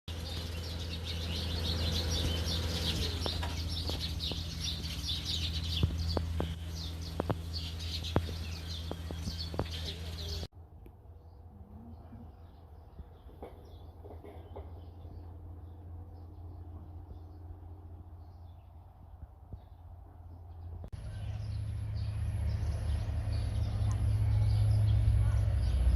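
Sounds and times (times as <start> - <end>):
small birds chirping: 0.1 - 10.5, 11.2 - 25.9
steady low hum: 0.1 - 13.1.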